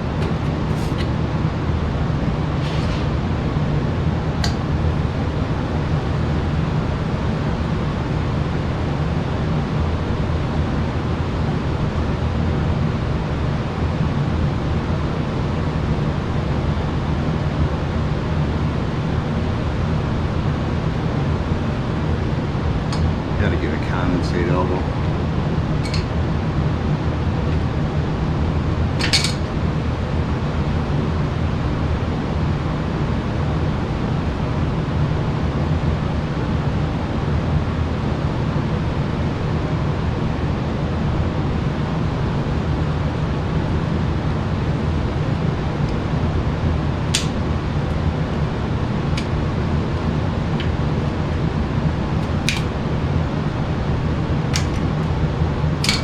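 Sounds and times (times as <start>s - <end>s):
low mechanical hum: 0.0s - 56.0s
hand tools clicking and clinking: 0.2s - 1.1s, 25.8s - 26.1s, 29.0s - 29.5s.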